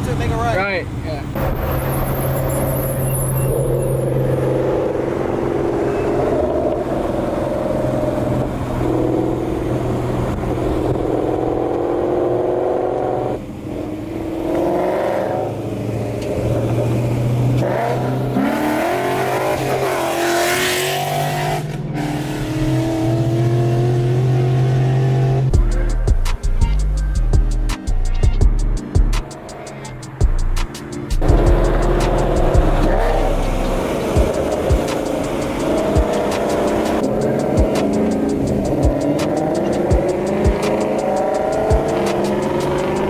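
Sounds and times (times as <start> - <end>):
car engine revving: 1.2 - 43.0.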